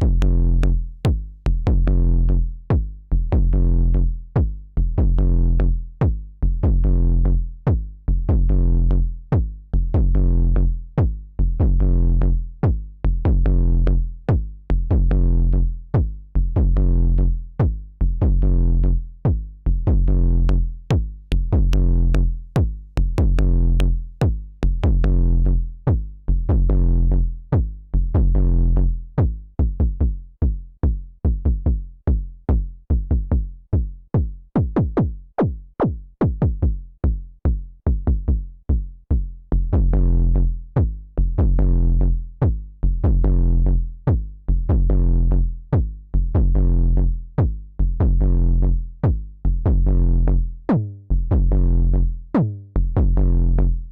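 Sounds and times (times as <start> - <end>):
synthesizer kick drum pattern: 0.0 - 2.1, 20.9 - 25.2, 29.2 - 41.8, 44.1 - 45.1, 45.7 - 46.7, 49.0 - 50.1, 51.3 - 51.7.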